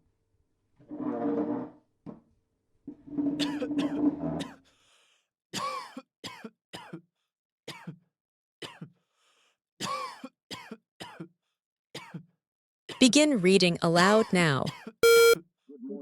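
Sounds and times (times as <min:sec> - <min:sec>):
person coughing: 0:05.6 - 0:07.0, 0:08.6 - 0:08.9, 0:09.8 - 0:11.3
steady pitched tone: 0:15.0 - 0:15.4.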